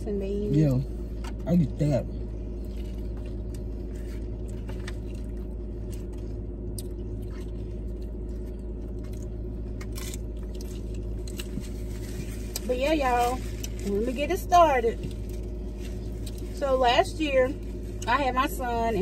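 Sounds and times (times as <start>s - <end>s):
car engine hum: 0.0s - 19.0s
chewing crunchy chips: 2.6s - 14.0s, 15.0s - 16.6s.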